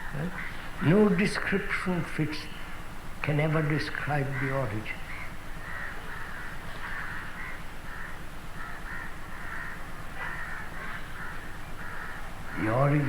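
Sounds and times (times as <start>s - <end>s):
crows cawing: 0.0s - 13.0s.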